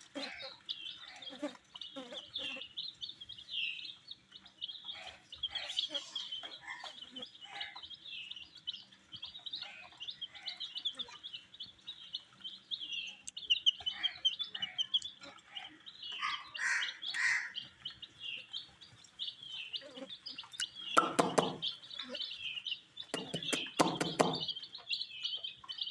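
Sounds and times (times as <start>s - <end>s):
baby chicks peeping: 0.0s - 25.9s
taps and rustles: 21.0s - 21.7s, 23.2s - 24.5s.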